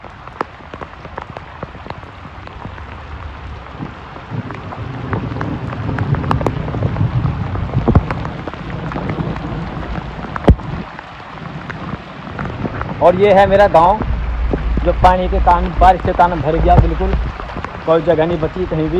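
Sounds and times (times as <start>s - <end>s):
heavy rain: 0.0s - 18.9s
low rumble: 11.9s - 18.9s.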